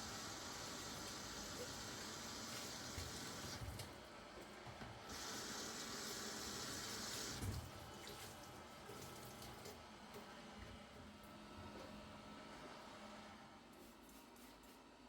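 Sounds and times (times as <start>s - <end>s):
tap water running into sink: 0.0s - 3.8s, 5.1s - 8.3s.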